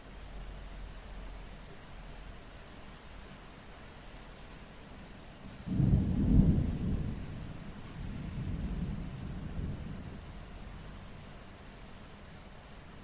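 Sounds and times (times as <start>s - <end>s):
thunder rumbling: 5.6s - 11.0s.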